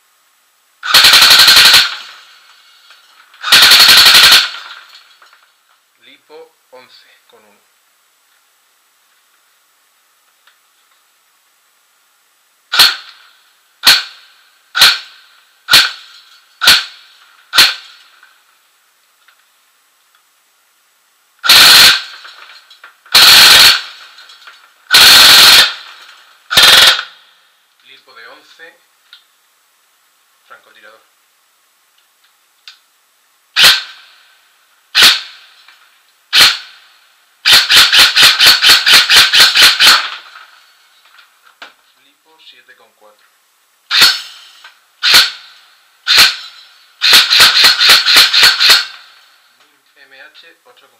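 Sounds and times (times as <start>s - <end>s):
airsoft gun firing single shots: 0.8s - 2.4s, 3.4s - 5.0s, 12.7s - 18.0s, 21.4s - 22.5s, 23.1s - 24.2s, 24.9s - 27.2s, 33.6s - 34.1s, 35.0s - 35.5s, 36.3s - 36.8s, 37.4s - 40.5s, 43.9s - 44.4s, 45.0s - 45.5s, 46.1s - 49.2s.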